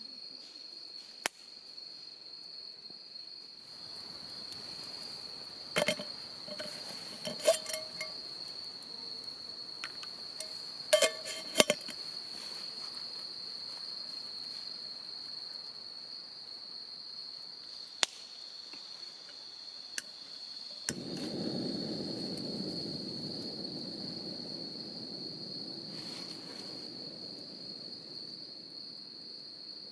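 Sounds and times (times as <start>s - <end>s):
insects trilling: 0.0s - 29.9s
sharp knocks and clinks: 5.8s - 8.2s, 9.9s - 12.0s.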